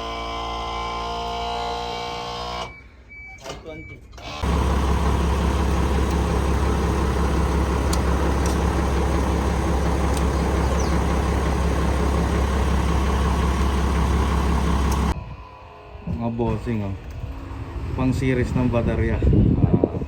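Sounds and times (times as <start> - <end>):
truck engine idling: 4.4 - 15.2.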